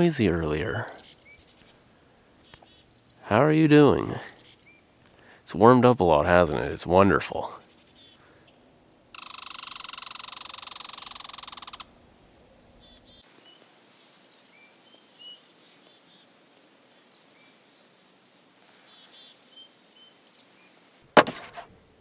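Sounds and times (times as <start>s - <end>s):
small birds chirping faintly: 0.0s - 21.2s
squirrel chattering: 9.2s - 11.9s.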